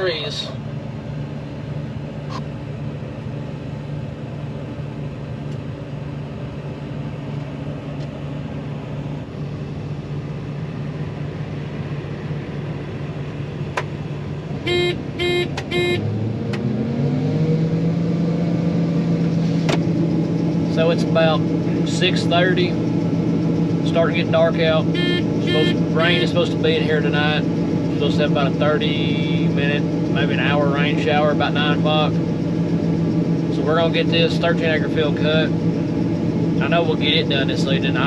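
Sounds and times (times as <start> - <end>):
combine engine running: 0.0 - 16.1, 18.8 - 38.0
short beeps: 14.7 - 16.0, 25.0 - 26.4.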